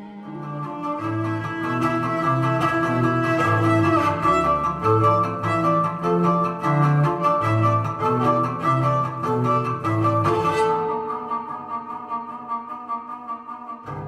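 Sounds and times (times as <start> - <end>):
bowed cello playing low notes: 0.0 - 14.0.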